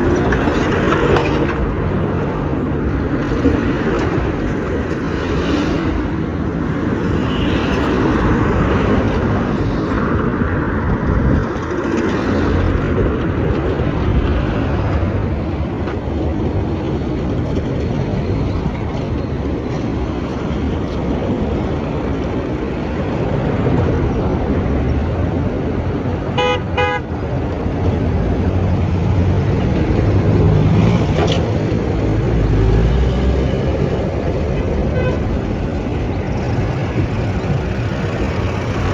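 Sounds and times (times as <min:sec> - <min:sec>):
road traffic noise: 0:00.0 - 0:38.9
vehicle horn toots: 0:26.4 - 0:27.1, 0:34.9 - 0:35.3.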